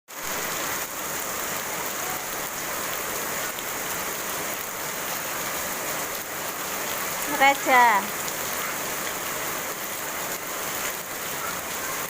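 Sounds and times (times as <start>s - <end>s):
rain falling steadily: 0.1s - 12.0s.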